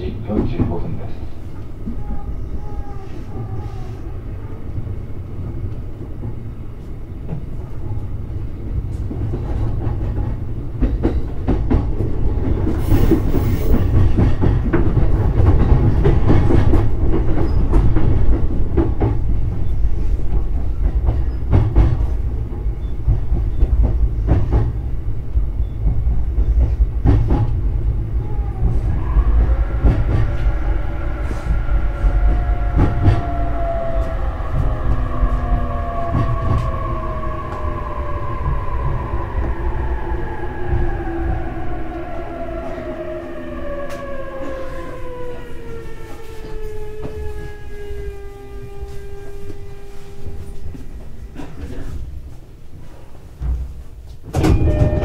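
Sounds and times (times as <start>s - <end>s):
rumble of train wheels on rail: 0.0s - 55.0s
train motor whine: 25.5s - 51.0s.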